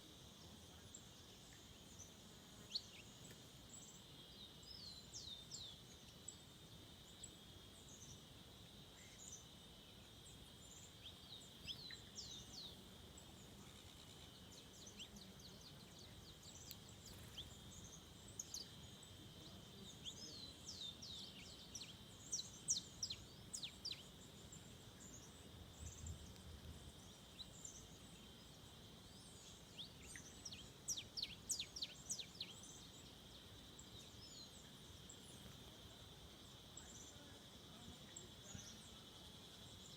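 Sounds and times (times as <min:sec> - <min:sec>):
forest birds calling: 0:00.0 - 0:39.9.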